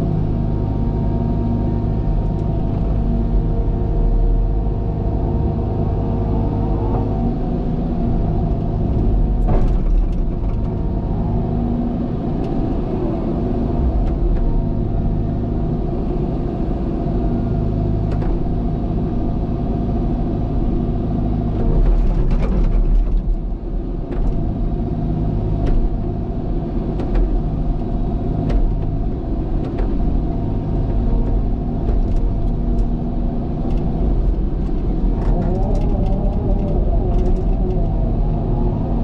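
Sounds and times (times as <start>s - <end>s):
diesel engine under load: 0.0s - 39.0s.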